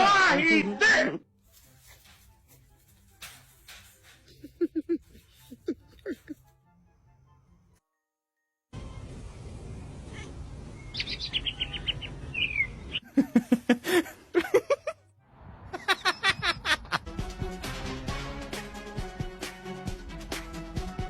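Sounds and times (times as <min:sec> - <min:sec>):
loud repeated bird calls: 0:10.8 - 0:13.1.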